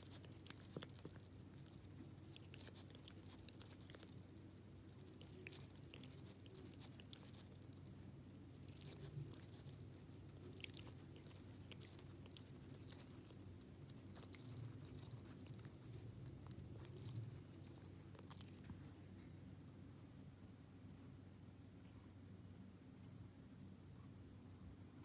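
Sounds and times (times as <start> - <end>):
cat licking fur: 0.0 - 18.9.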